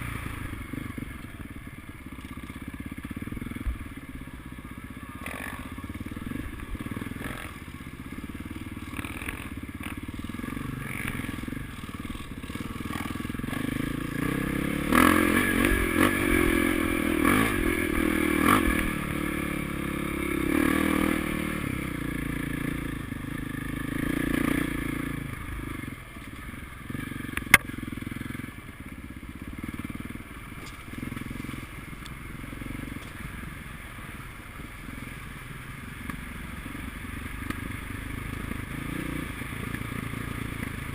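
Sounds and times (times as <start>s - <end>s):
motocross engines revving: 5.1s - 7.6s, 8.8s - 25.2s.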